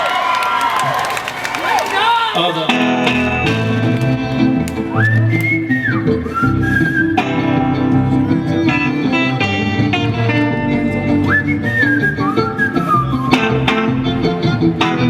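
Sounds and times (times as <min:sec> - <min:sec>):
plucked guitar: 0:02.6 - 0:15.0
live band backing: 0:02.7 - 0:15.0
whistled melody: 0:04.8 - 0:14.6.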